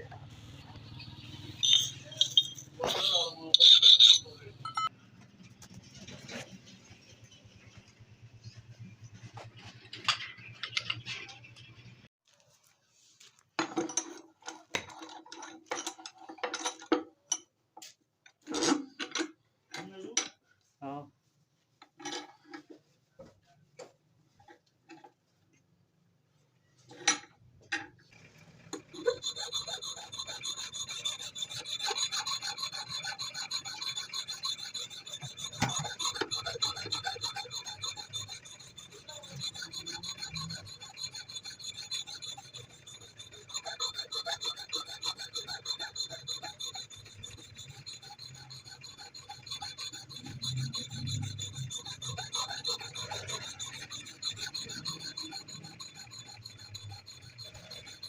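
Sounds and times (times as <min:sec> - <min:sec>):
metal file rasping on steel: 0:00.4 - 0:04.9, 0:28.7 - 0:58.0.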